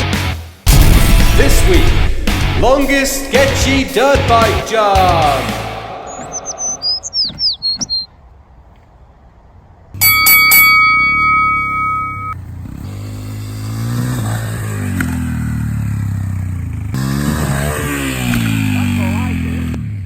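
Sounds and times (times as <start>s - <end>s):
brief ringing tone: 10.0s - 12.4s
dirt bike engine starting and revving: 10.9s - 20.0s.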